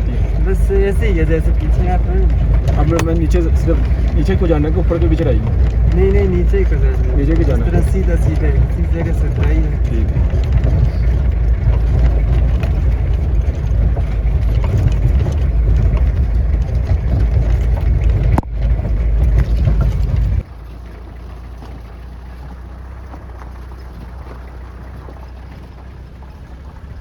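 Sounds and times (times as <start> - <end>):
wind buffeting microphone: 0.0 - 20.5.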